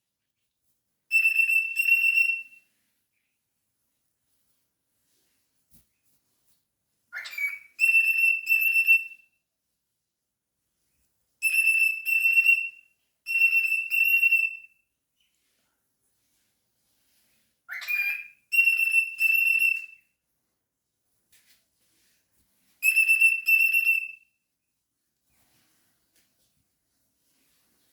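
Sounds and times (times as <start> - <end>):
cockatiel whistling: 1.1 - 2.6, 7.2 - 9.2, 11.4 - 12.7, 13.3 - 14.6, 17.7 - 19.9, 22.8 - 24.2.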